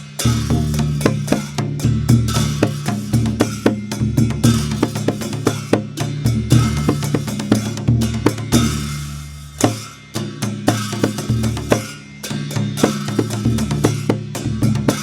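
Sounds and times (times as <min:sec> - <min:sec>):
cymbal strokes: 0:00.0 - 0:15.0
drum beaten rhythmically: 0:00.0 - 0:15.0.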